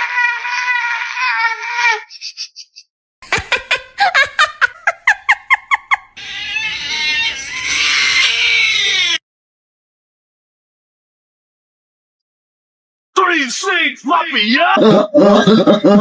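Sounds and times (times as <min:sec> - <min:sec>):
harsh animal cry: 0:06.2 - 0:09.2
short animal calls sweeping down: 0:06.6 - 0:09.2.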